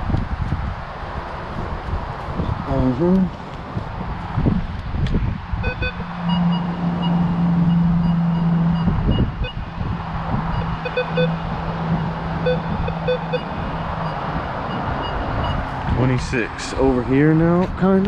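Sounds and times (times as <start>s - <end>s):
wind noise: 0.0s - 18.0s
metal detector high beeps: 5.6s - 9.6s, 10.5s - 11.4s, 12.4s - 15.6s
metal detector low tone: 5.6s - 9.7s, 10.5s - 15.6s.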